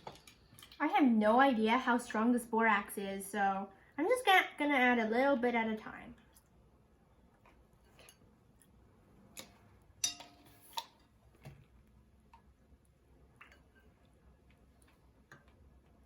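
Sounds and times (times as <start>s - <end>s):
ringing clink: 10.0s - 10.4s.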